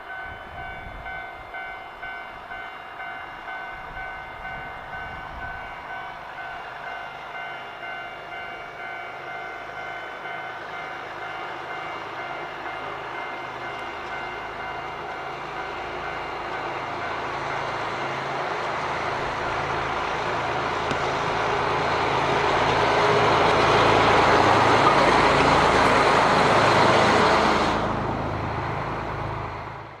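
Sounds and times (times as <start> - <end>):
diesel locomotive engine running: 0.0 - 30.0.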